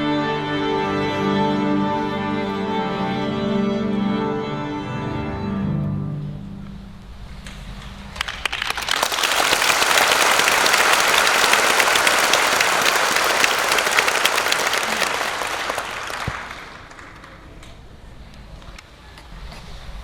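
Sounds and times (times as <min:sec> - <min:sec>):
audience applauding: 0:08.2 - 0:17.8.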